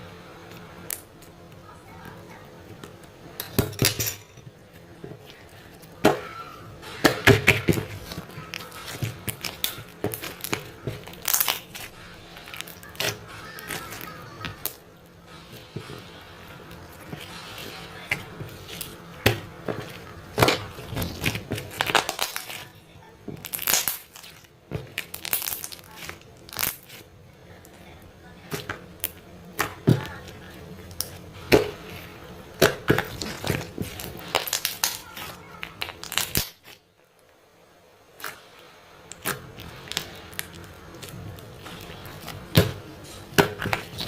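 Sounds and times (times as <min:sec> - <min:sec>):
faint background music: 0:00.0 - 0:44.0
crackling and crinkling: 0:00.1 - 0:44.0.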